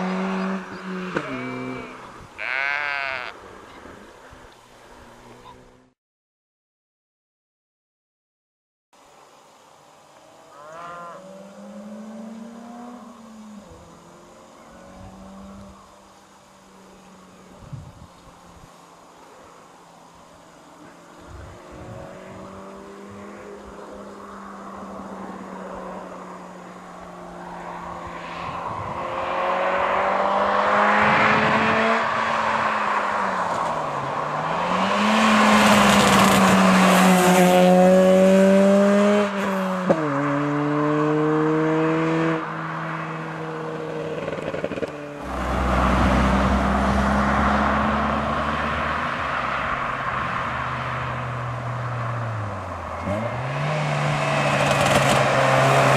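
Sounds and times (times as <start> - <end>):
car engine revving hard: 0.0 - 2.1, 29.0 - 43.2, 43.8 - 55.9.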